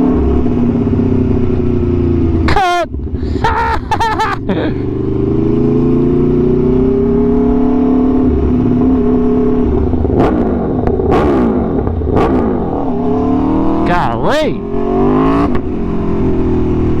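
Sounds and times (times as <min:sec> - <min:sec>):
motorcycle engine revving: 0:00.0 - 0:17.0
exhaust cracks: 0:08.2 - 0:12.9.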